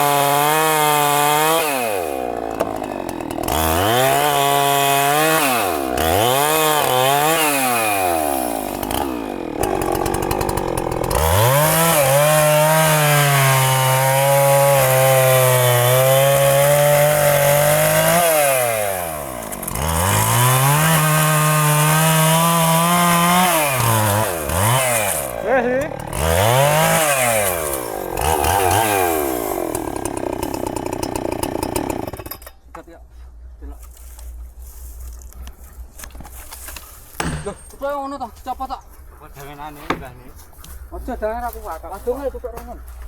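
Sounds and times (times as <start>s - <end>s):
chainsaw cutting tree trunk: 0.0s - 32.6s, 36.7s - 38.0s.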